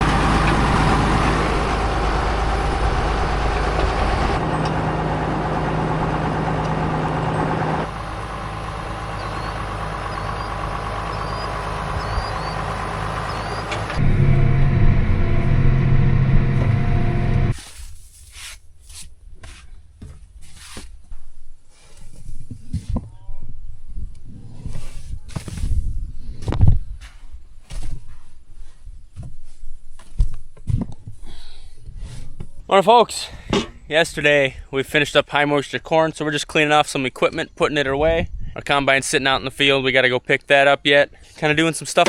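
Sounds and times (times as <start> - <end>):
heavy farm machinery engines: 0.0 - 17.6.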